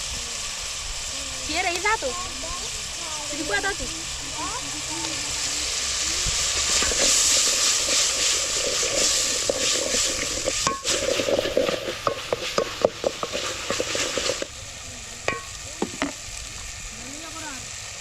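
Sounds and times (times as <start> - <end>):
food sizzling in oil: 0.0 - 18.0
utensil scraping pan: 6.2 - 14.5, 15.2 - 16.2.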